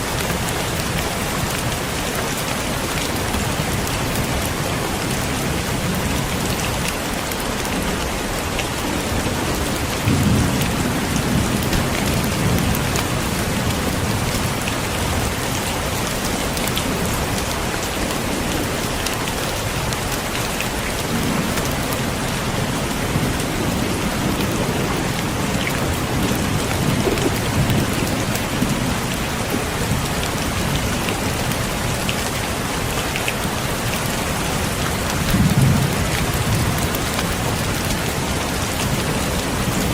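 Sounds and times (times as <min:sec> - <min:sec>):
heavy rain hissing: 0:00.0 - 0:39.9
thunder rolling: 0:22.5 - 0:30.0.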